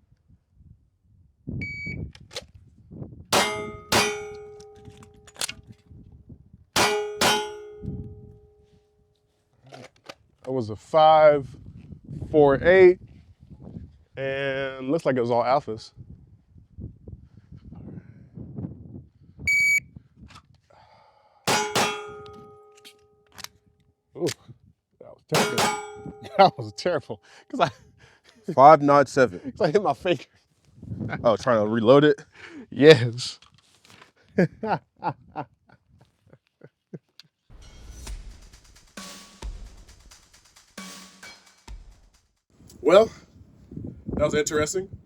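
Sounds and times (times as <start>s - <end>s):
shot timer beep: 1.6s - 2.0s, 19.5s - 19.8s
magazine reload clack: 3.4s - 5.6s
metallic ringing: 3.4s - 5.6s, 6.8s - 8.6s, 21.5s - 23.2s, 25.4s - 27.0s.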